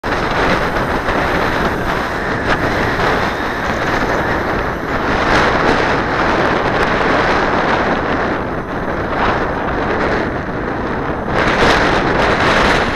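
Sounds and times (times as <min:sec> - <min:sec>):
wind buffeting microphone: 0:00.0 - 0:12.9.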